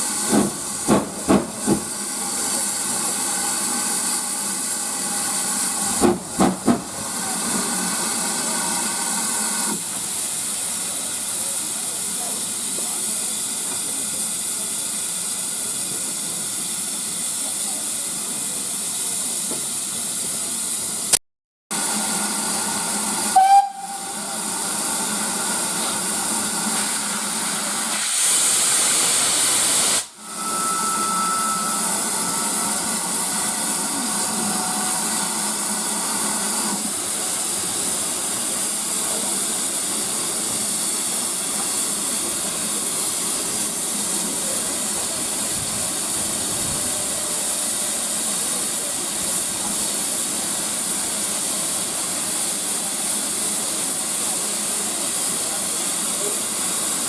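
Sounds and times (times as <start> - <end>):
steam locomotive hissing: 0.0 - 21.1, 21.7 - 57.0
steam whistle blast: 23.2 - 24.5, 28.0 - 35.6
faint steady whistle tone: 30.2 - 32.9.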